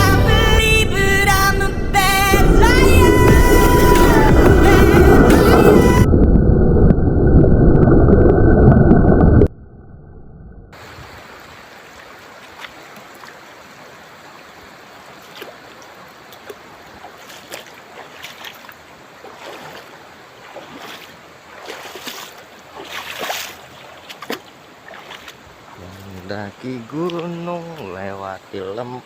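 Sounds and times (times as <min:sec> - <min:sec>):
shallow river water running: 0:10.7 - 0:29.0
water splashes: 0:10.8 - 0:29.0.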